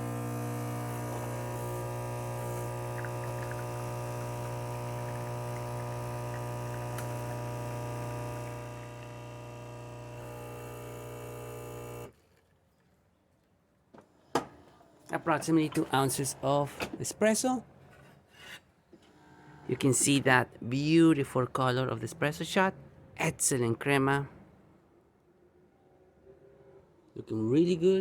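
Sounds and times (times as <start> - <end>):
water pump humming: 0.0 - 12.1.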